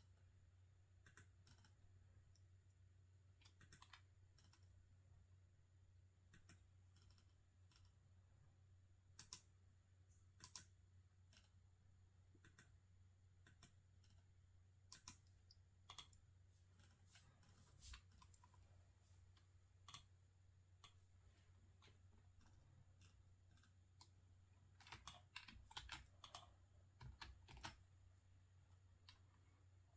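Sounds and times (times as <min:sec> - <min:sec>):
faint low hum: 0:00.0 - 0:29.9
keyboard and mouse clicks: 0:01.0 - 0:01.8, 0:03.4 - 0:04.7, 0:06.3 - 0:07.9, 0:09.2 - 0:09.5, 0:10.4 - 0:10.7, 0:12.3 - 0:12.7, 0:14.9 - 0:16.2, 0:21.8 - 0:27.8.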